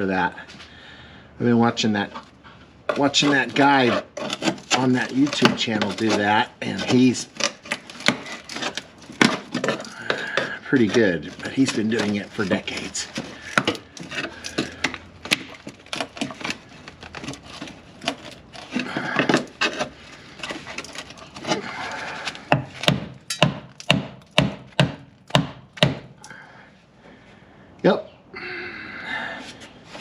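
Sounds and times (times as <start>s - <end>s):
hand tool scraping sheet steel: 2.9s - 23.5s.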